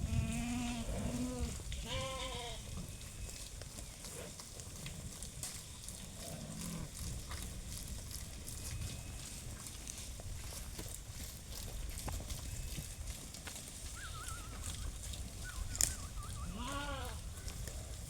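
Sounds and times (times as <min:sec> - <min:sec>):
animal bleating: 0:00.0 - 0:02.7, 0:13.9 - 0:17.5
low farm animal call: 0:00.0 - 0:10.1, 0:12.0 - 0:18.0.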